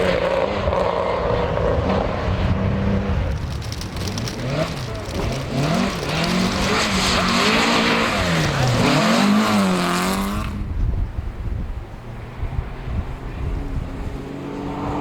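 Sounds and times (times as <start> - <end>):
rally car engine revving: 0.0 - 10.7.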